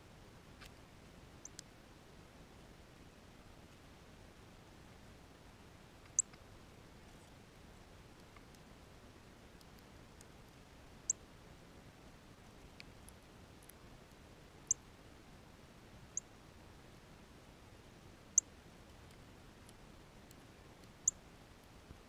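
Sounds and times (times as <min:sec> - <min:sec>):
faint steady hiss: 0:00.0 - 0:22.0
small birds chip calls: 0:01.4 - 0:01.6, 0:06.0 - 0:06.4, 0:19.1 - 0:21.2.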